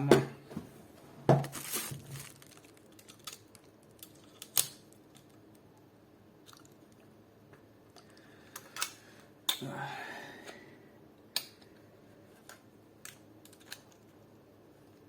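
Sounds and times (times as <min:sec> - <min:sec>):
plastic parts clicking and scraping: 0:01.6 - 0:05.4, 0:12.4 - 0:14.1.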